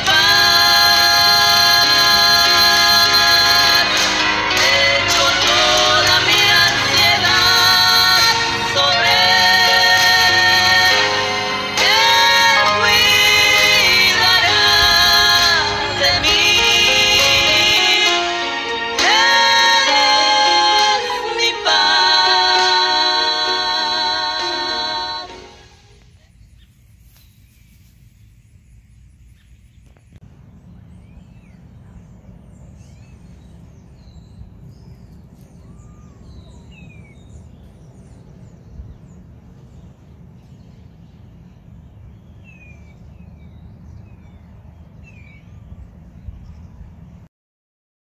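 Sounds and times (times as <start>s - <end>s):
steady low rumble: 11.7s - 19.0s, 25.2s - 47.3s
birds chirping: 21.2s - 47.2s.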